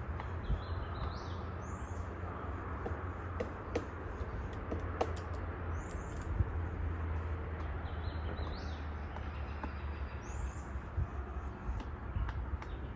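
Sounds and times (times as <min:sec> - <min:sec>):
woodpecker tapping on wood: 0:02.6 - 0:10.1, 0:11.1 - 0:12.9.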